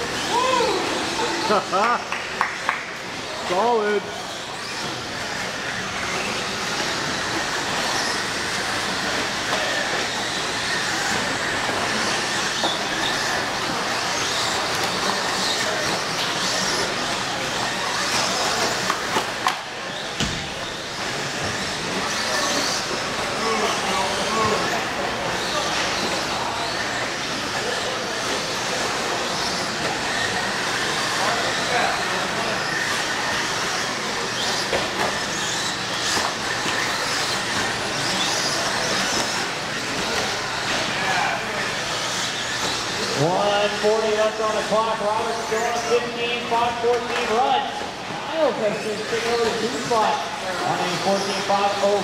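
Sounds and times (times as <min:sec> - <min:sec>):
tyre and chassis noise: 0:02.3 - 0:51.1
rc truck motors hissing: 0:03.1 - 0:52.0.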